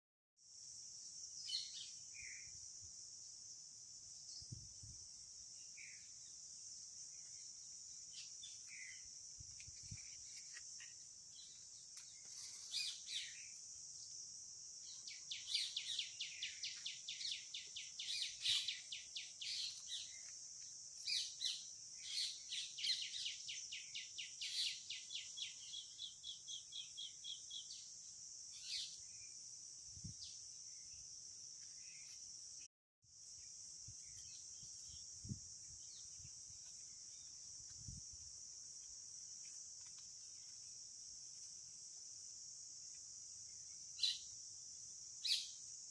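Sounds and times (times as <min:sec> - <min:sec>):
high insect drone: 0:00.4 - 0:45.9
birds chirping: 0:10.0 - 0:13.6, 0:14.8 - 0:27.9.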